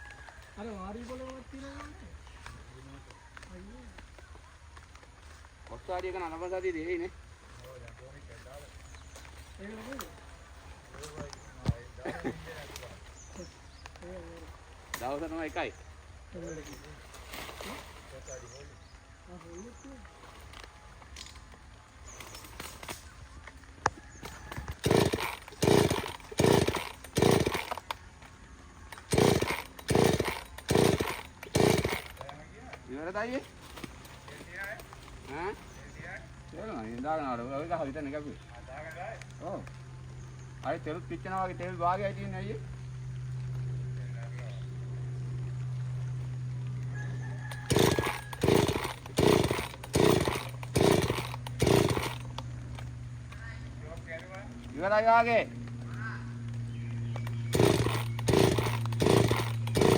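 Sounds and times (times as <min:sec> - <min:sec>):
chainsaw engine bursts: 0:14.8 - 0:15.7, 0:22.0 - 0:23.2, 0:24.1 - 0:38.2, 0:47.0 - 0:55.9, 0:56.7 - 0:59.9.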